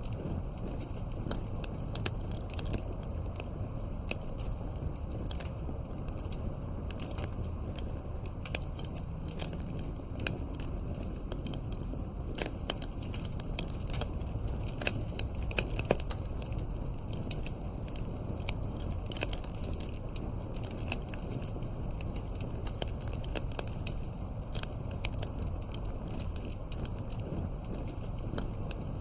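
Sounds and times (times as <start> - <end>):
campfire crackles and pops: 0.0 - 29.0
flames rumbling: 0.0 - 29.0.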